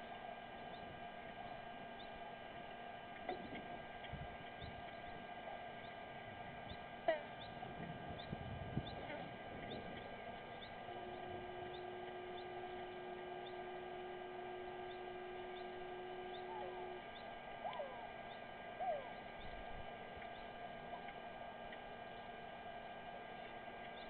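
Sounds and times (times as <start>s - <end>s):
electrical hum: 0.0s - 24.0s
short gliding calls: 0.0s - 24.0s.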